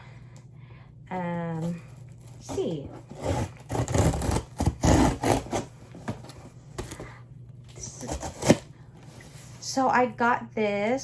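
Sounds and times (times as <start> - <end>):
cardboard rubbing and scraping: 2.2 - 7.0, 7.8 - 9.6.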